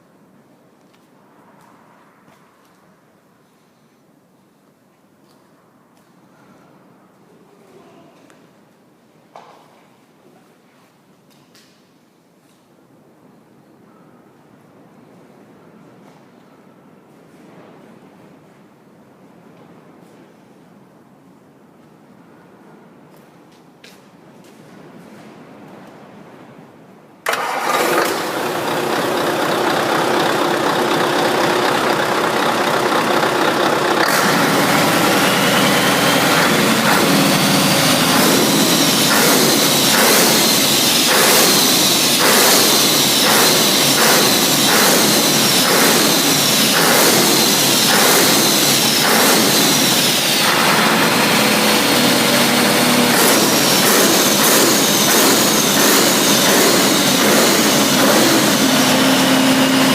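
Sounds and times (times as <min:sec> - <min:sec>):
diesel engine starting and running: 0:27.2 - 0:59.9.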